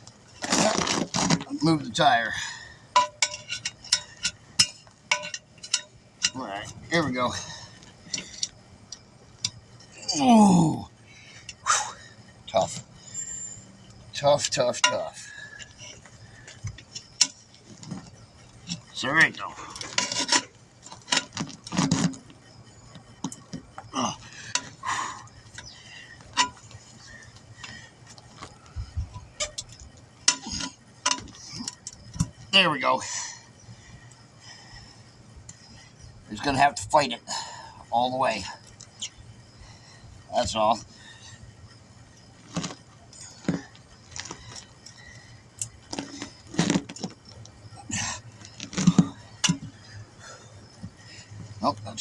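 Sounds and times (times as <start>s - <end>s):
metallic clicks of tire tools: 0.0s - 10.0s, 11.3s - 37.6s, 40.4s - 52.0s.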